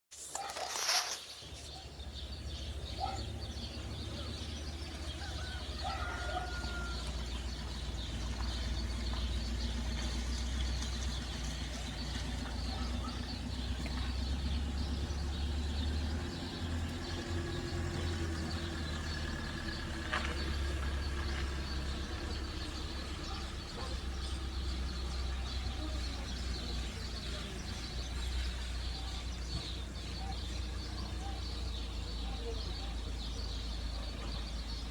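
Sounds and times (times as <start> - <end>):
small birds chirping: 0.2 - 34.9.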